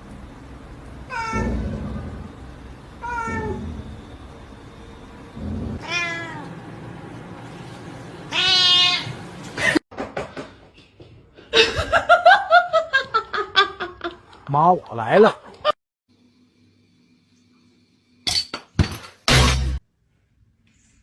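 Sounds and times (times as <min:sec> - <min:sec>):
cat meowing: 0:03.0 - 0:03.7, 0:05.8 - 0:06.5, 0:08.3 - 0:09.2.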